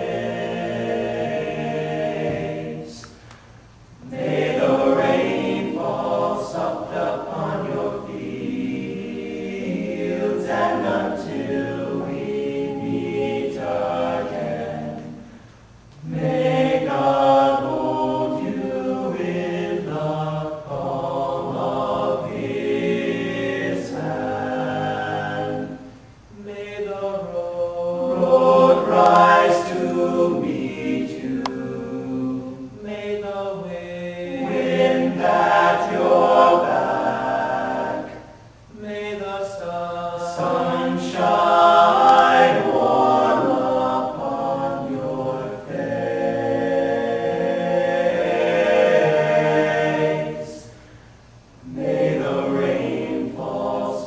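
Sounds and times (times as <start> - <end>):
male vocal group singing in harmony: 0.0 - 3.3, 4.0 - 51.0, 51.6 - 54.0.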